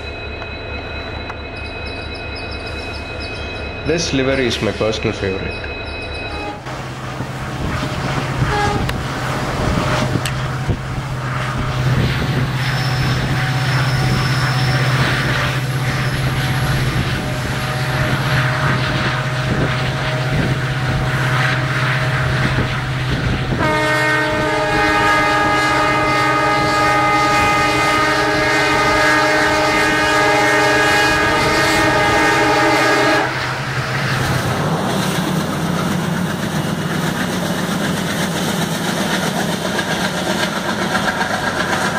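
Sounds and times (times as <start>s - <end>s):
diesel locomotive engine droning: 0.0s - 41.9s
locomotive horn blast: 6.3s - 6.9s, 7.6s - 10.6s, 17.0s - 22.4s, 23.5s - 33.7s
train wheel clatter: 33.5s - 41.9s.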